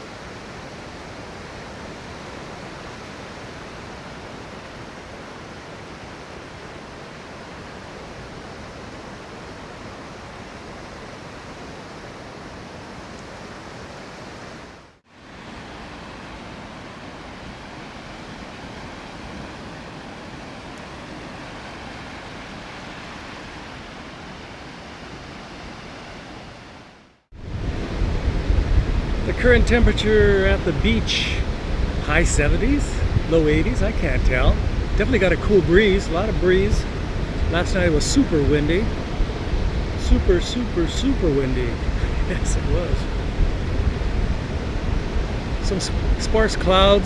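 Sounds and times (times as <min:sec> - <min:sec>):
surf breaking on beach: 0:27.4 - 0:47.0.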